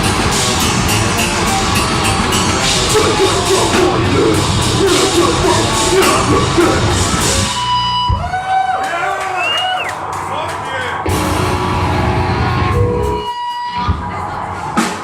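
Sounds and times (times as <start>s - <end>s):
distorted guitars: 0.0s - 8.4s, 10.0s - 15.0s
drums: 0.0s - 15.0s
harsh screamed vocals: 2.6s - 10.0s.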